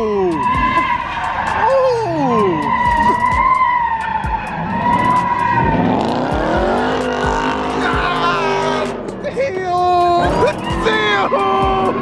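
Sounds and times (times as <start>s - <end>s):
car engine revving: 0.0s - 12.0s
car tires squealing: 0.0s - 12.0s.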